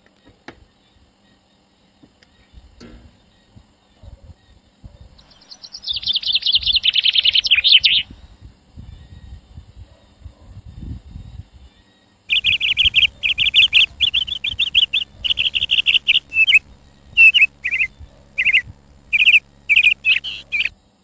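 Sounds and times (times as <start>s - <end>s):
small bird chirping: 5.2s - 8.2s, 12.3s - 20.7s.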